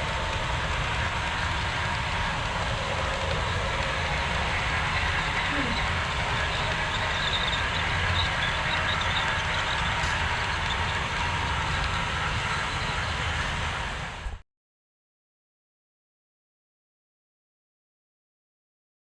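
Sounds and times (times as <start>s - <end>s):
model train rumbling on track: 0.0s - 14.4s.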